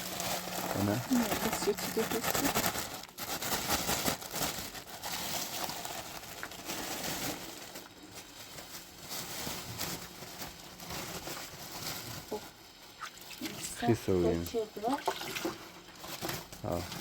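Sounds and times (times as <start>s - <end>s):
rustling and crinkling: 0.0s - 17.0s.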